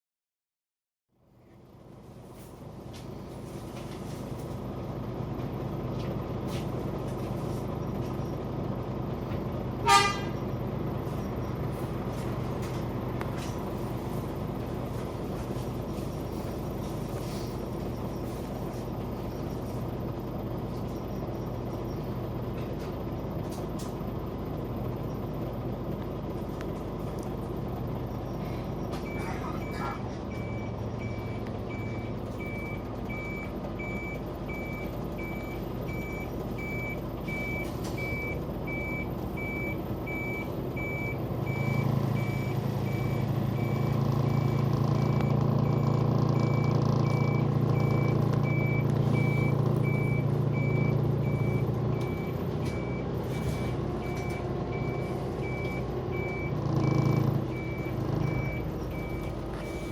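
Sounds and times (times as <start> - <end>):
bus diesel engine: 1.1 - 59.9
reversing alarm beeping: 28.0 - 59.9.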